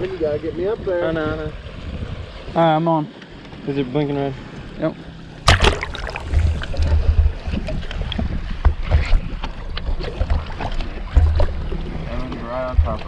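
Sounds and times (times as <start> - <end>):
handling noise on boat: 5.4 - 13.0.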